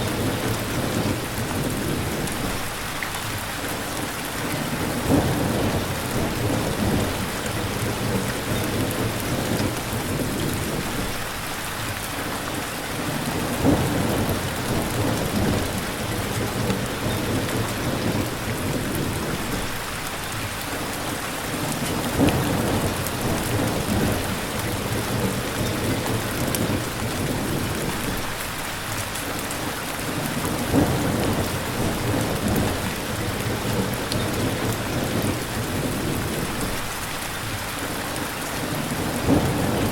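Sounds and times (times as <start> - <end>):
heavy rain: 0.0 - 39.9
thunder rolling: 13.4 - 19.7, 38.9 - 39.9.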